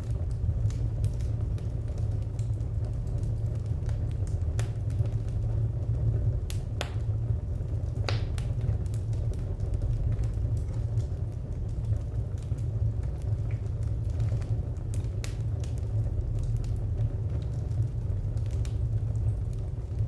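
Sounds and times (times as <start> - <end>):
fire crackling and popping: 0.0 - 20.0
fire rumbling: 0.0 - 20.0.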